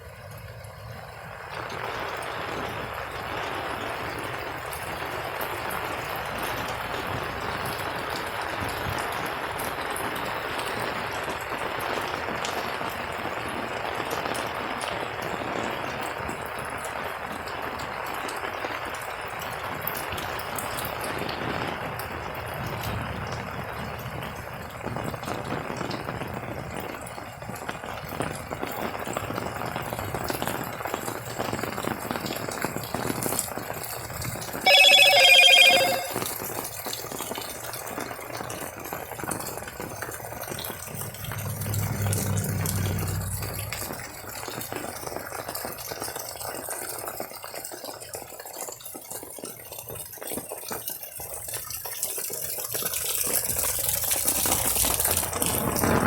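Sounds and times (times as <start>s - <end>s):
steady rain falling: 0.0s - 34.4s, 38.4s - 56.0s
loud high-pitched tone: 34.7s - 36.2s
low rumble: 40.8s - 44.3s.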